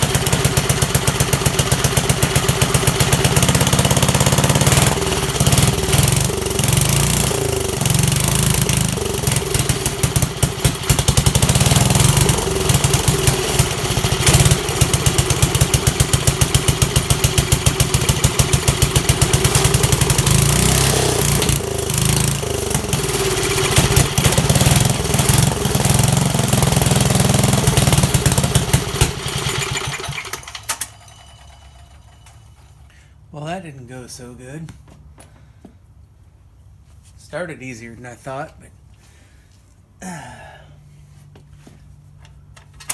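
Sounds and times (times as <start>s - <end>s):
small engine running unevenly: 0.0s - 32.6s.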